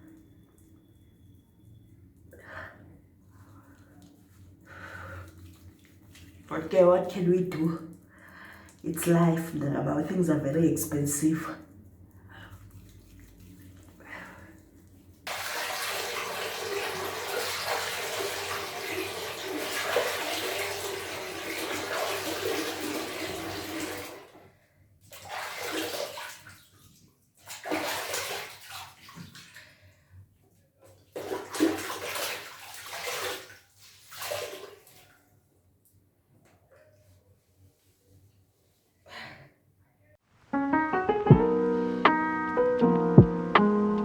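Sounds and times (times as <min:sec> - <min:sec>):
water splashing: 0:12.4 - 0:24.2, 0:25.1 - 0:29.7, 0:31.1 - 0:35.2
tap water running: 0:15.3 - 0:24.4.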